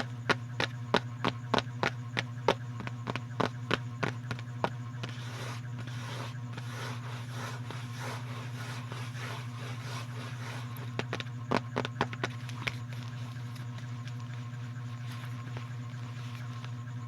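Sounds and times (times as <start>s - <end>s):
sharp taps: 0.0s - 5.2s, 9.2s - 14.4s
steady low hum: 0.0s - 17.0s
soft scratching strokes: 2.8s - 17.0s.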